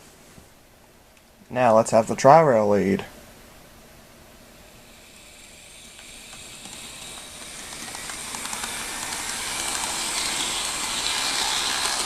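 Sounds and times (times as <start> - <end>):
model train motor whirring: 4.6 - 12.0.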